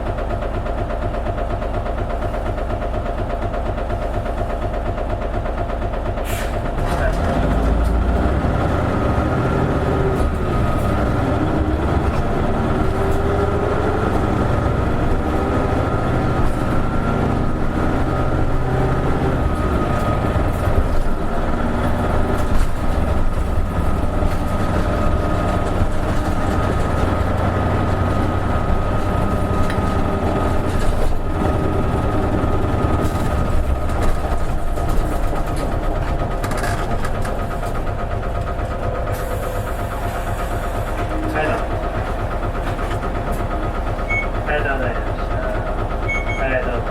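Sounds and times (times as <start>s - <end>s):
bus engine drone: 0.0s - 46.9s
road noise: 6.1s - 46.9s.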